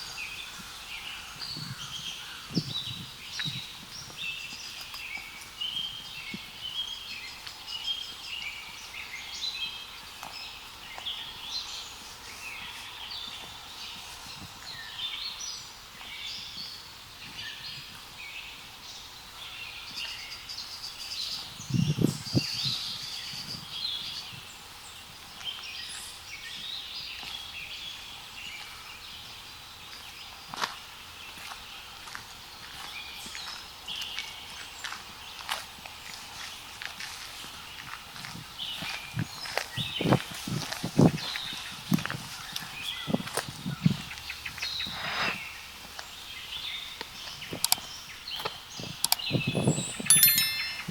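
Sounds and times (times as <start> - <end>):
birds singing in chorus: 0.0 - 31.8, 37.7 - 50.9.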